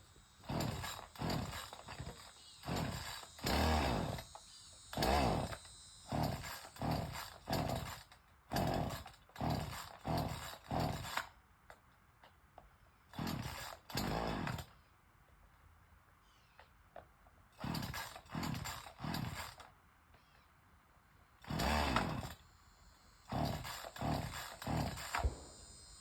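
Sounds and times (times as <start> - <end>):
chainsaw starter cord yanks: 0.4 - 11.3, 13.1 - 14.7, 17.6 - 19.7, 21.4 - 22.4, 23.2 - 25.4.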